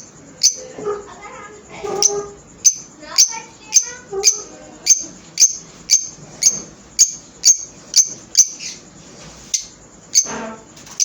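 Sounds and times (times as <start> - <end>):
lovebirds chirping: 0.0 - 0.7, 1.9 - 8.8.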